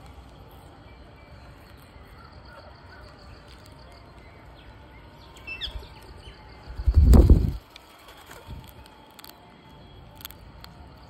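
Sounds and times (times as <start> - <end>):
birds calling: 1.1 - 7.6.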